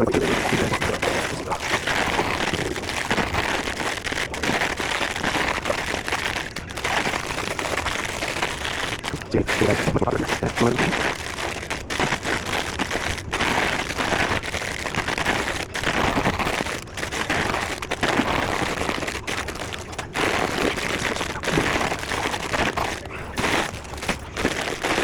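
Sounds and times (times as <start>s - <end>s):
plastic snack bags crinkling: 0.0s - 25.0s.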